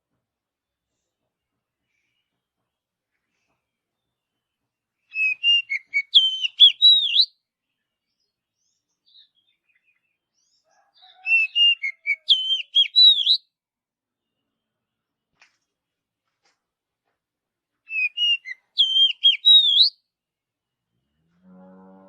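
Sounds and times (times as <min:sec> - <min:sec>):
bird singing whistled phrase: 0:05.1 - 0:07.3, 0:11.2 - 0:13.4, 0:17.9 - 0:20.0.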